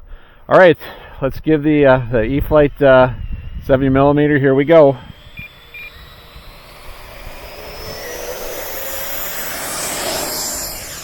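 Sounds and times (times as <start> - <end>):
electric ducted fan jet whine: 0.1 - 11.0.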